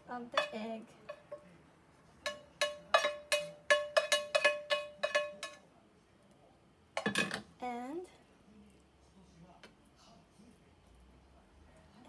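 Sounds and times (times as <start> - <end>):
steel saucepan knocking: 0.0 - 1.5, 2.2 - 5.6, 7.0 - 7.5.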